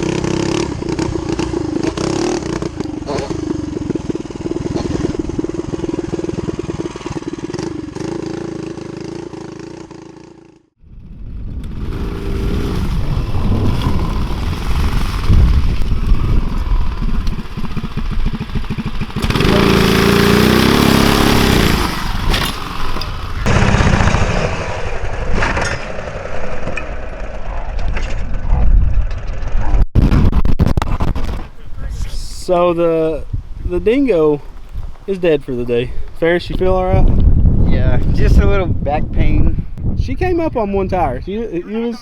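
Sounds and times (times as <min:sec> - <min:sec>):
wind: 0:00.0 - 0:42.0
small engines revving: 0:11.6 - 0:27.5.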